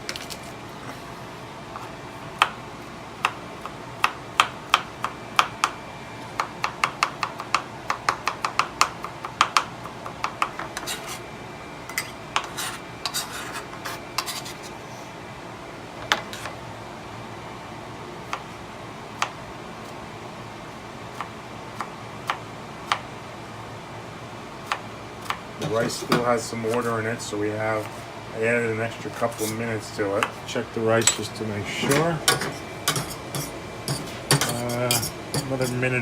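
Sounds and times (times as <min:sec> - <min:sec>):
knife scraping board: 0:10.8 - 0:11.3, 0:11.9 - 0:14.8, 0:16.2 - 0:16.5, 0:29.3 - 0:29.7, 0:31.0 - 0:35.8.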